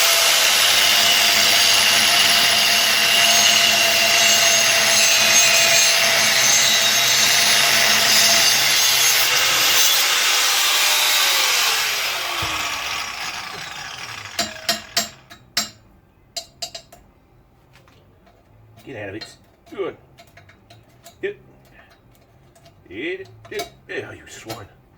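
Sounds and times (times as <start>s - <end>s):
grinder spinning down: 0.0s - 15.2s
angle grinder cutting steel: 0.0s - 15.3s.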